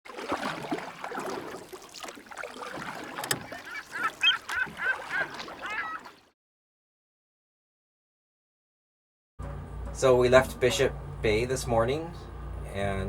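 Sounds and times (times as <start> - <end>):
bird calling: 2.5 - 6.3.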